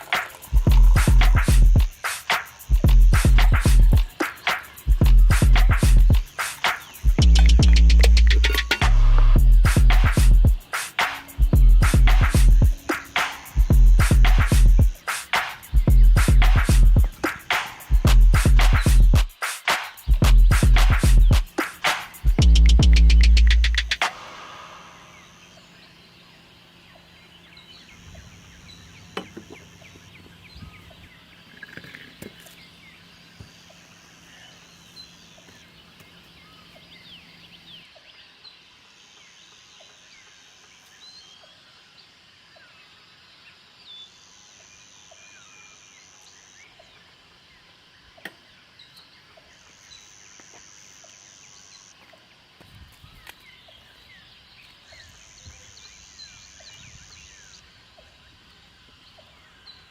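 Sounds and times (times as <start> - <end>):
high buzzing call: 0.0 - 25.4
small wildlife chirps: 0.0 - 26.0.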